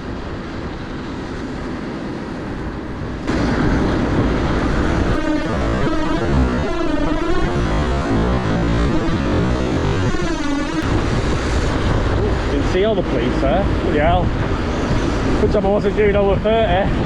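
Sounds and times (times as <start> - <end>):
wind rushing over microphone: 0.0 - 6.7, 10.8 - 17.0
music with wavering synth tones: 4.4 - 12.2.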